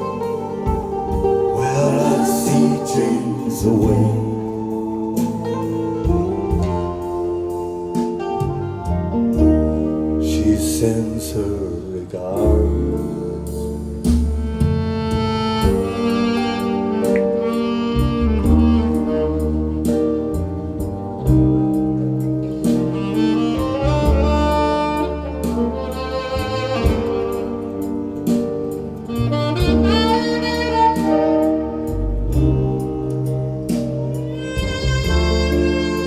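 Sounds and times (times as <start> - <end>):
instrumental music over loudspeakers: 0.0 - 36.0.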